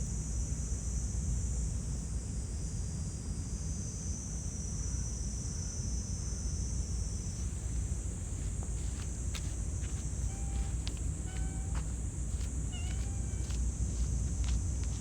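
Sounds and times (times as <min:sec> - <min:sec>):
high-pitched insect chorus: 0:06.4 - 0:15.0
continuous low rumble: 0:06.7 - 0:15.0.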